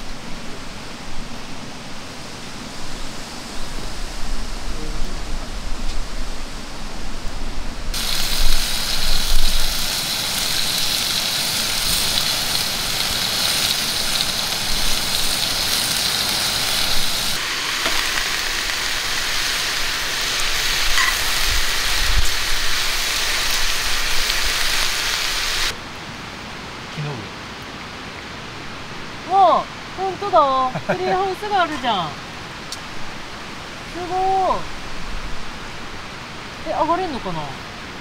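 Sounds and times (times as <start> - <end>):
food sizzling in a skillet: 8.0 - 25.8.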